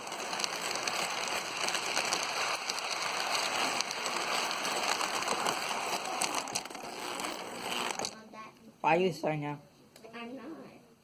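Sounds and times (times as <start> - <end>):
toy train rattling on track: 0.0 - 8.2.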